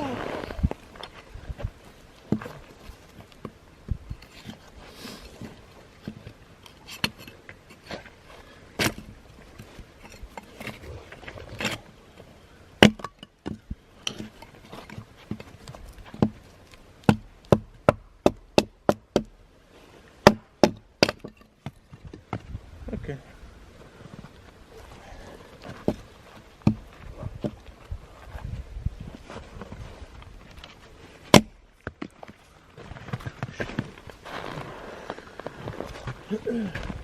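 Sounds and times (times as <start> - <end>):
blade chopping wood: 12.8 - 14.3, 17.0 - 19.3, 20.2 - 21.8, 31.3 - 32.2.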